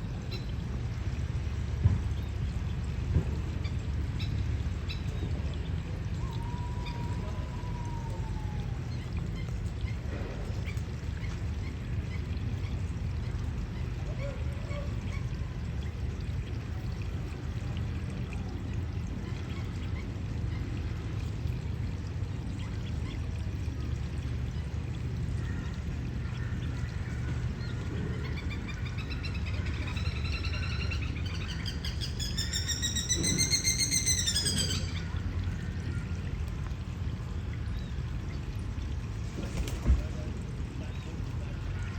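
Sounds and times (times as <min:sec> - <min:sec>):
running water: 0:00.0 - 0:41.9
lapwing chattering call: 0:28.3 - 0:35.2.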